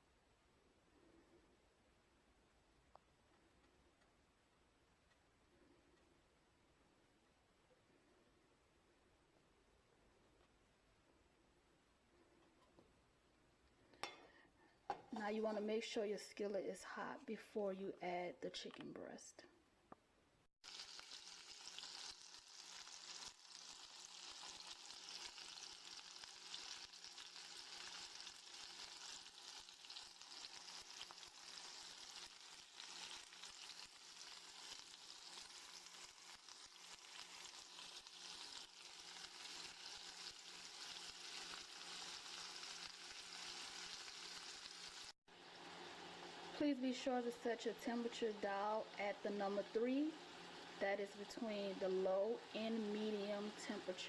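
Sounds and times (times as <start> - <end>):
chicken sizzling in a skillet: 20.6 - 54.0.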